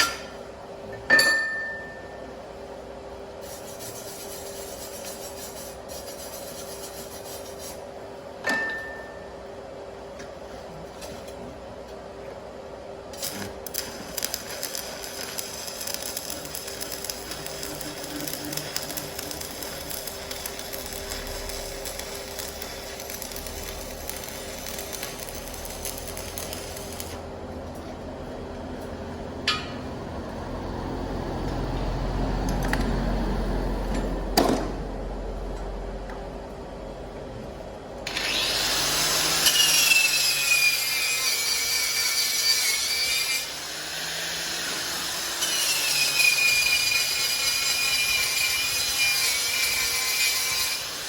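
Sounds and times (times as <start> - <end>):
welding arc crackling and buzzing: 3.4 - 7.8, 13.1 - 27.4, 38.1 - 51.0.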